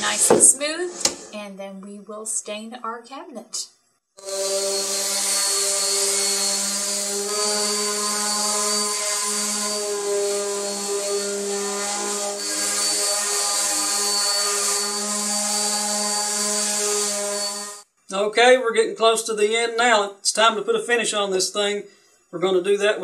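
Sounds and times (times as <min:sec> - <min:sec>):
orbital sander humming: 0:04.2 - 0:17.8.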